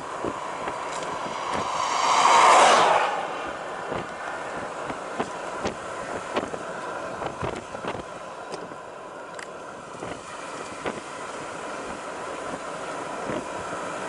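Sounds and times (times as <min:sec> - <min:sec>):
motor drone: 0:00.0 - 0:06.6.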